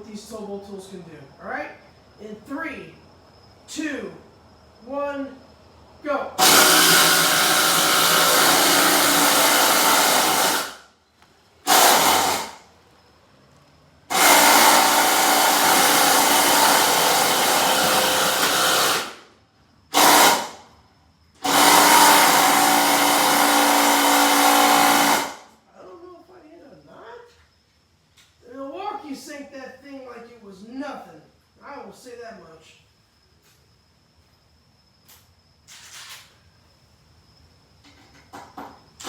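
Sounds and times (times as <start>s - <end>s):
impact driver hammering screw into wood: 6.4s - 10.8s, 11.7s - 12.6s, 14.1s - 19.2s, 19.9s - 20.6s, 21.4s - 25.4s.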